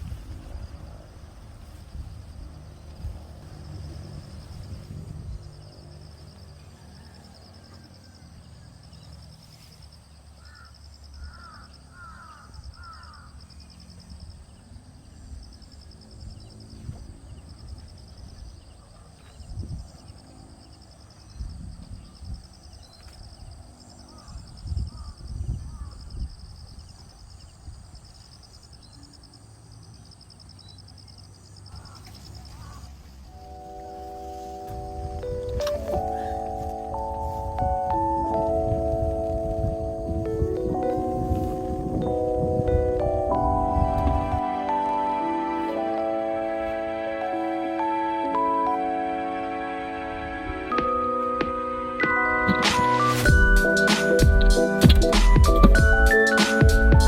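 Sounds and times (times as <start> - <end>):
wind on microphone: 0.0 - 5.7, 16.3 - 18.7, 19.3 - 20.1, 23.3 - 28.1, 34.7 - 44.4
bird harsh cawing calls: 10.4 - 13.5, 31.7 - 33.0
high pulsing trill: 50.8 - 57.0.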